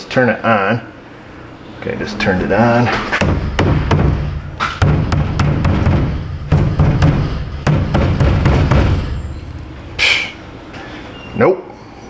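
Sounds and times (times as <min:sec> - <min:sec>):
thumps on metal fuel tank: 0:03.2 - 0:10.0.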